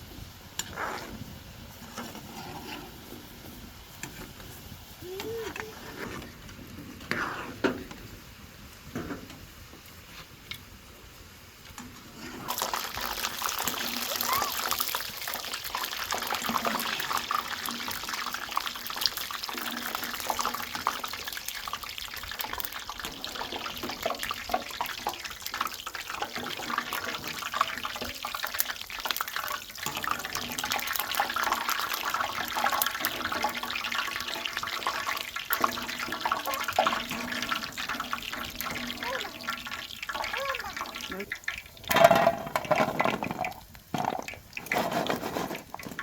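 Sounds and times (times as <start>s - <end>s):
water running and splashing: 12.4s - 46.0s.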